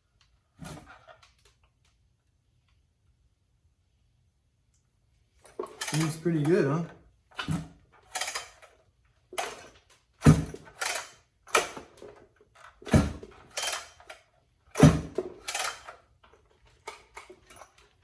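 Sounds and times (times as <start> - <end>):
chainsaw being handled knocks: 9.4 - 12.0, 14.8 - 15.6.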